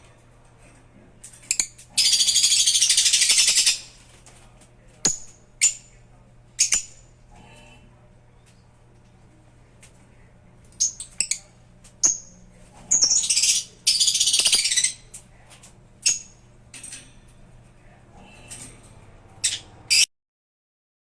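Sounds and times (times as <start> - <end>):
harsh rapid bird chattering: 1.5 - 4.0, 5.1 - 5.9, 6.6 - 7.0, 10.8 - 15.1, 19.4 - 20.1
lovebirds chirping shrilly: 1.5 - 4.0.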